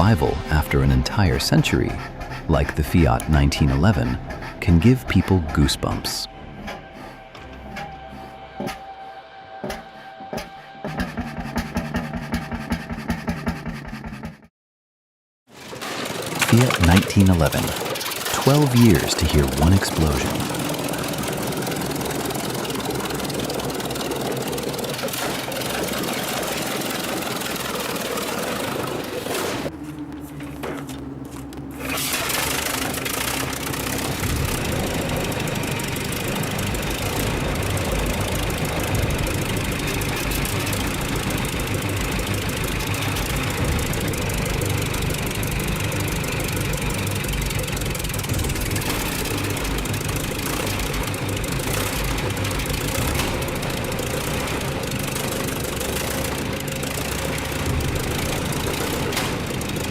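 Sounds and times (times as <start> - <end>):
car engine starting and running: 0.0 - 9.0, 15.6 - 59.9.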